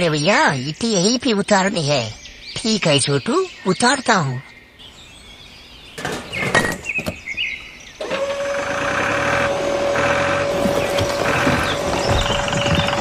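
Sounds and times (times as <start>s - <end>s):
motor whine: 8.0s - 13.0s
clattering knocks: 9.5s - 13.0s.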